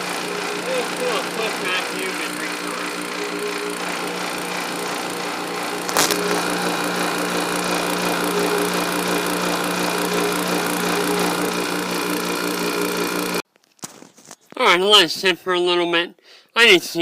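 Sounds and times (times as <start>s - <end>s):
vacuum pump humming: 0.0s - 13.4s.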